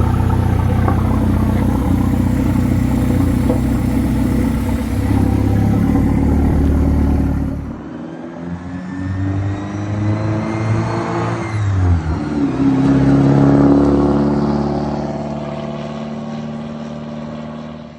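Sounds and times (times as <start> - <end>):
car engine driving by: 0.0 - 8.0.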